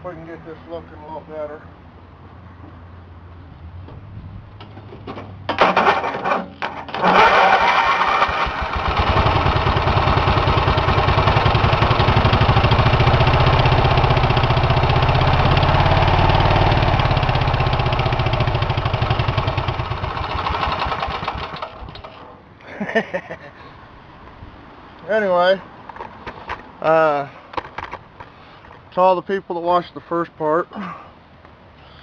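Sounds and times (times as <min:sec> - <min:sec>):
engine starting and running: 0:04.6 - 0:22.4.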